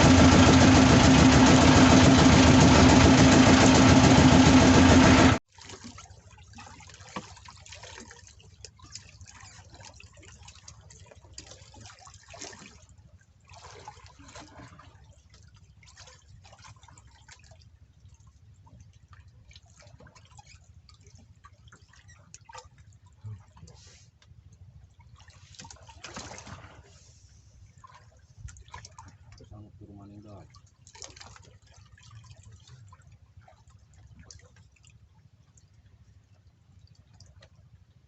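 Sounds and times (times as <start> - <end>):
boat engine running: 0.0 - 5.4.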